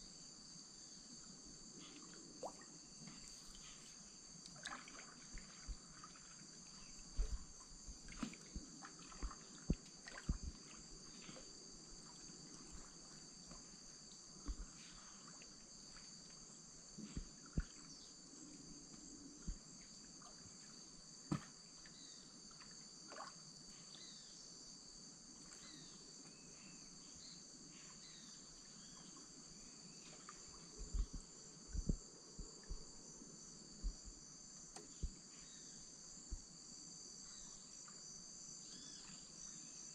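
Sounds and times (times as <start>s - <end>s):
high-pitched insect chorus: 0.0s - 39.9s
canoe paddle knocks and splashes: 7.1s - 11.3s, 21.3s - 21.7s.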